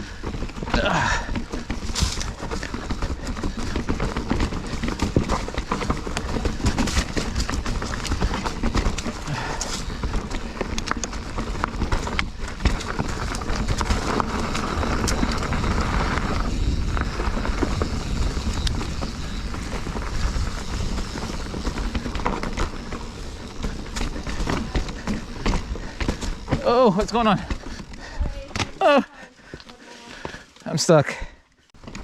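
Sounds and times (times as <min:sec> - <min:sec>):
bike tyres and frame rattling: 0:00.0 - 0:30.6, 0:31.2 - 0:32.0
wind rumbling on microphone: 0:01.8 - 0:26.6.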